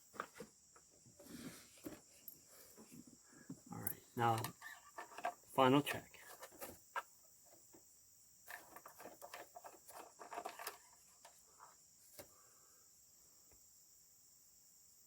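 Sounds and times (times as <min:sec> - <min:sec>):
crickets chirring: 0:00.0 - 0:15.0
handling clicks and rustles: 0:03.8 - 0:07.7, 0:08.5 - 0:11.7.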